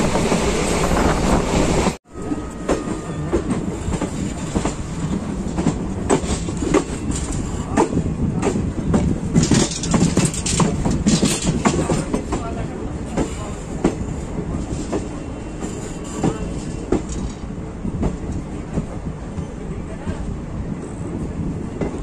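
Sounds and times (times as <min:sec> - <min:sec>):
train rumbling on rails: 0:00.0 - 0:22.0
wheels clacking over rail joints: 0:02.5 - 0:14.1, 0:14.7 - 0:19.0.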